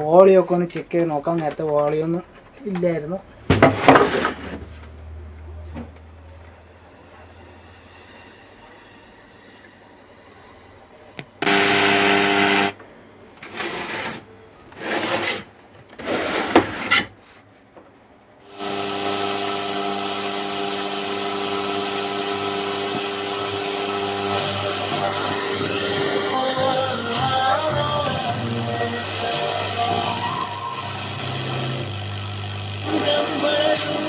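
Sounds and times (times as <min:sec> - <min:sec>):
music from speaker: 0:24.4 - 0:31.4, 0:32.8 - 0:34.0.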